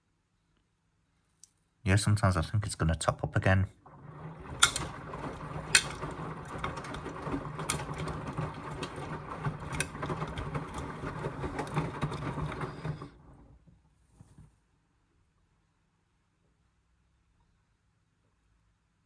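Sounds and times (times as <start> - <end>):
water sloshing: 3.8 - 13.4
washing machine motor hum: 3.8 - 13.6
clicks and knocks from drum: 3.9 - 13.3.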